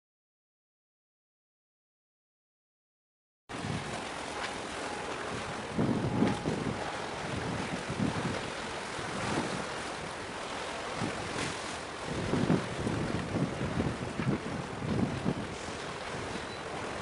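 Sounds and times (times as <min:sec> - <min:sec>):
wind buffeting microphone: 0:03.5 - 0:17.0.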